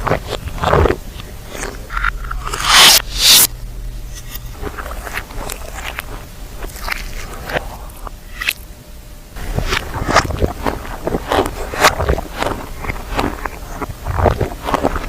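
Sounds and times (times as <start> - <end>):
crunchy bites reversed: 0.0 - 8.7, 9.4 - 15.0
wet squishy chewing clicks: 9.4 - 15.0.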